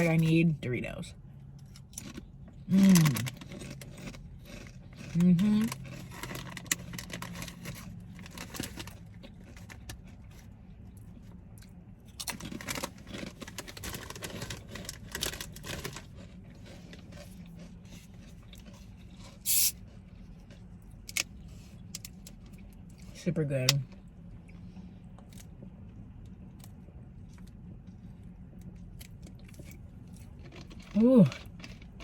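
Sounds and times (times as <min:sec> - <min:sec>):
low hum of traffic: 0:00.0 - 0:32.0
food wrapper crinkling: 0:02.8 - 0:10.1, 0:12.2 - 0:17.4.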